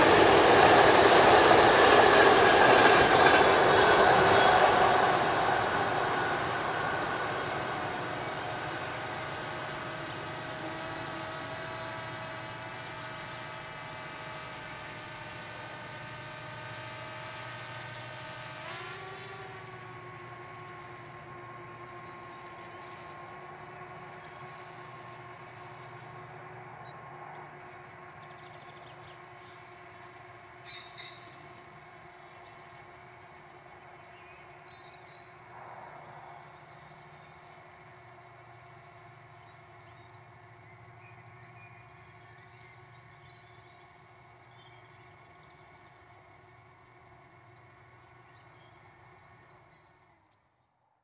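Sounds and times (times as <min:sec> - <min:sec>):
birds chirping: 0:00.0 - 0:18.6, 0:19.2 - 0:50.8
train engine humming: 0:00.0 - 0:49.5.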